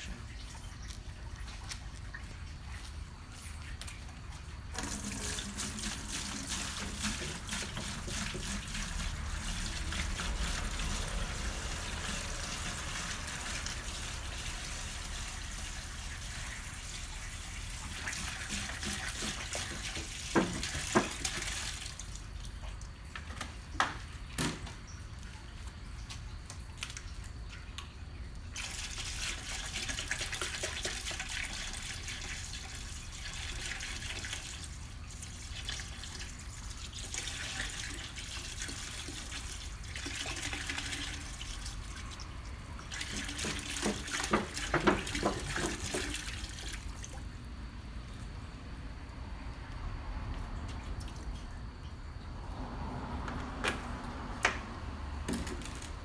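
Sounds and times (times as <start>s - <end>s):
water pouring into a bucket: 4.4s - 23.7s, 25.2s - 47.5s.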